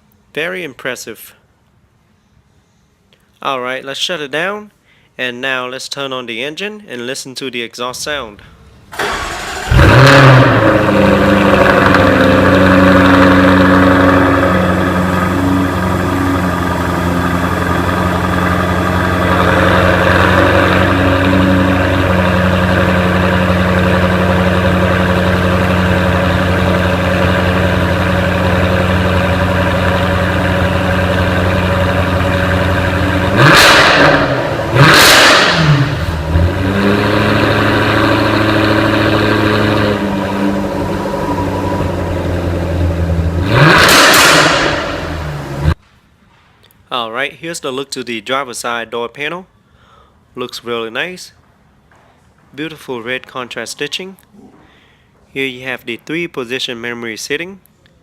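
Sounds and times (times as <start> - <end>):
car engine idling: 8.9 - 45.8
car engine revving: 9.0 - 45.8.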